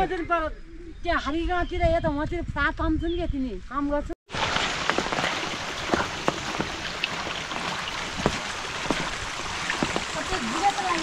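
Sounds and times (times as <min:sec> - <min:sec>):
raindrops striking surfaces: 0:04.3 - 0:11.0
steady rain hiss: 0:04.3 - 0:11.0.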